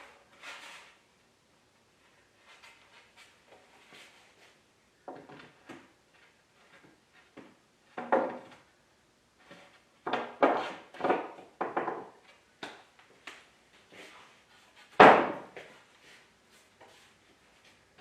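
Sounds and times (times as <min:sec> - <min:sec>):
wooden knocks and scrapes: 0:05.1 - 0:08.7, 0:09.4 - 0:12.4.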